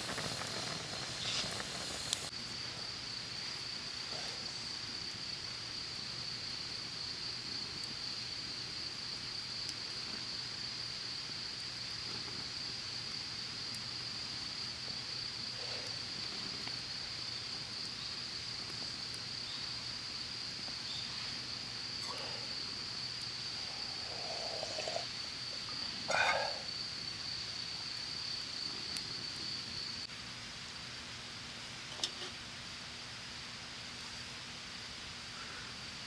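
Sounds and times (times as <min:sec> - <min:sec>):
high-pitched insect chorus: 0:00.0 - 0:06.6, 0:14.2 - 0:30.1.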